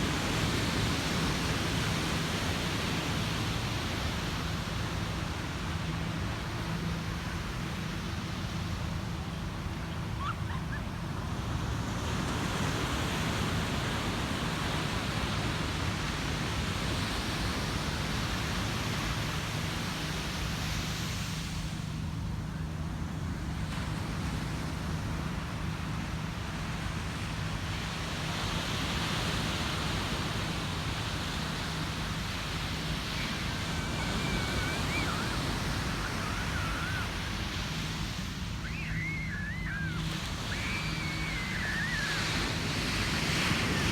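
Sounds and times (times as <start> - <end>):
ocean surf breaking on beach: 0.0 - 43.9
faint high chirps: 33.2 - 37.0.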